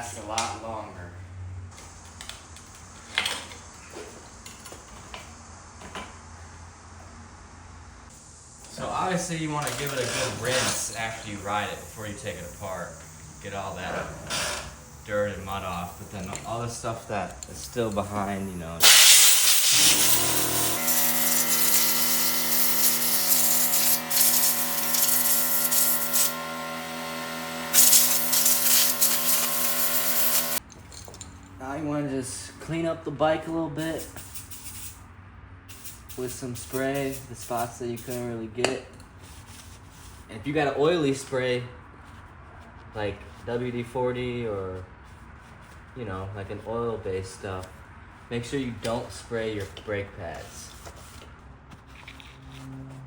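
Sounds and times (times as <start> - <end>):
water spray hissing: 18.8 - 26.4, 27.7 - 30.6
pressure washer motor: 18.8 - 30.6.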